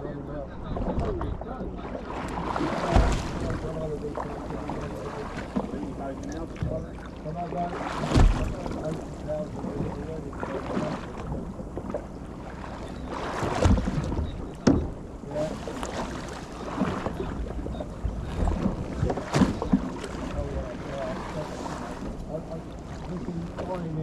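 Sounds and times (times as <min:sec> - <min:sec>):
sharp knocks: 0:08.1 - 0:08.5, 0:13.6 - 0:15.0
wind buffeting the microphone: 0:13.2 - 0:22.4.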